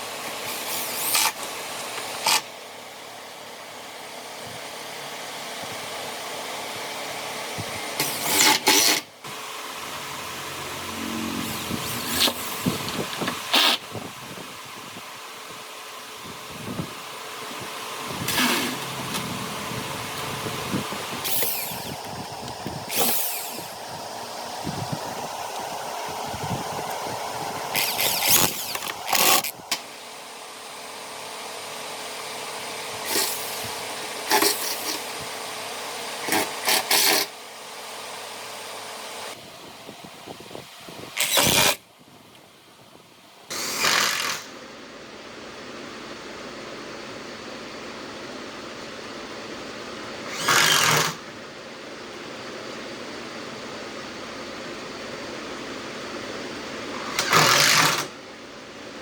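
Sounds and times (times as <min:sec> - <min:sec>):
power tool biting into wood: 0:00.4 - 0:01.5, 0:02.1 - 0:02.5, 0:08.0 - 0:09.1, 0:11.0 - 0:13.8, 0:18.3 - 0:19.4, 0:21.2 - 0:22.1, 0:22.8 - 0:23.8, 0:27.7 - 0:29.8, 0:33.0 - 0:33.6, 0:34.3 - 0:35.0, 0:36.2 - 0:37.3, 0:41.2 - 0:41.8, 0:43.5 - 0:44.5, 0:50.3 - 0:51.2, 0:57.0 - 0:58.1
power tool running on wood: 0:08.0 - 0:13.8, 0:18.1 - 0:30.1, 0:33.0 - 0:35.1, 0:43.5 - 0:44.5, 0:50.3 - 0:51.2, 0:57.0 - 0:58.1.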